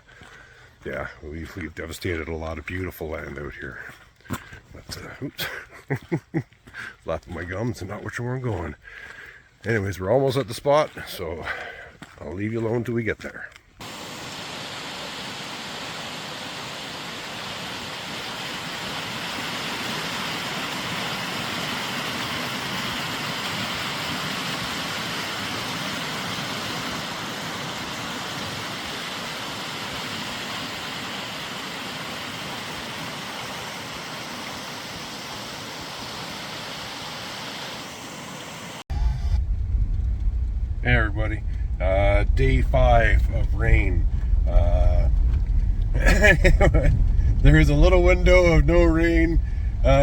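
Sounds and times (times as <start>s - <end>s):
flowing water rushing: 13.8s - 38.9s.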